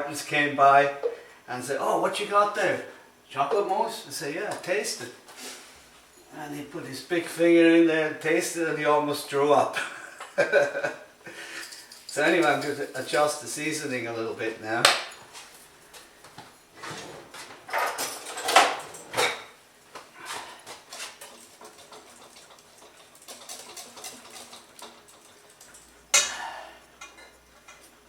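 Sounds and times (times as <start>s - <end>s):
metal utensil scraping bowl: 11.6s - 13.4s.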